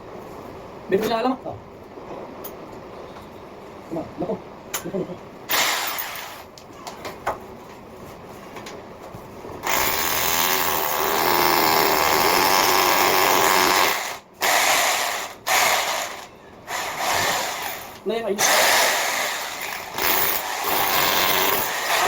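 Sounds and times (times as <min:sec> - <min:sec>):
power drill cutting concrete: 0:05.5 - 0:06.4, 0:09.7 - 0:22.0.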